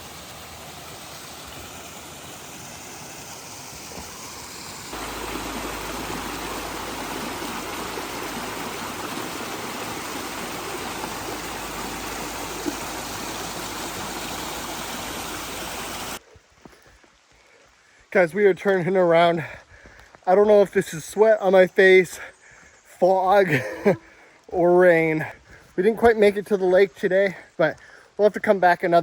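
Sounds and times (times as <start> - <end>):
river rushing: 0.0 - 16.2.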